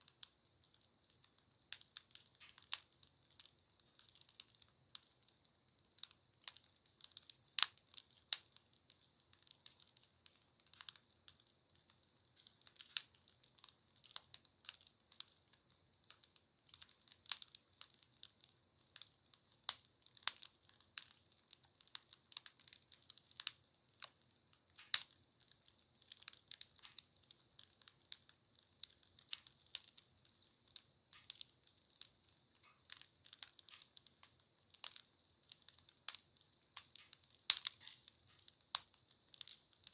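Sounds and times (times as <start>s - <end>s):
steady high hiss: 0.0s - 39.9s
wood fire crackling: 0.0s - 39.9s.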